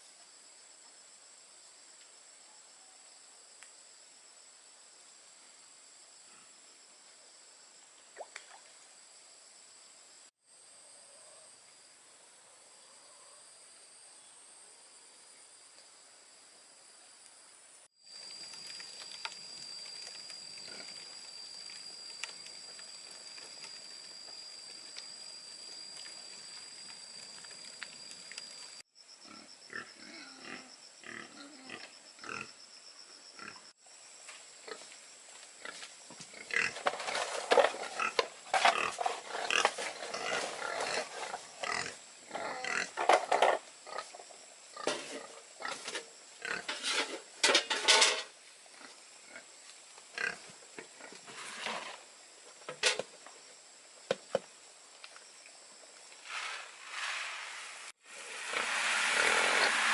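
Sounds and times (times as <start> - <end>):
faint hiss: 44.4 - 59.9.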